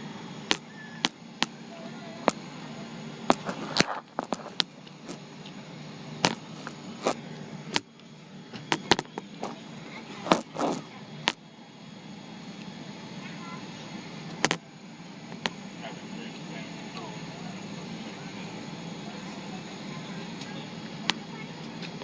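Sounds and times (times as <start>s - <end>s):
airliner cabin hum: 0.0s - 22.0s
sharp clicks and knocks: 3.3s - 5.6s, 6.2s - 7.9s, 8.6s - 9.6s, 14.3s - 14.6s.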